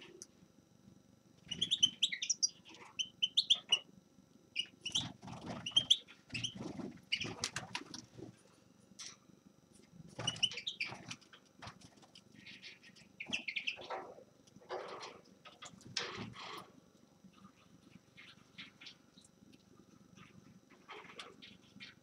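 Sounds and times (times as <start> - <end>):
finch twittering: 1.5 - 3.8, 4.6 - 7.4, 10.2 - 11.1, 12.4 - 14.1.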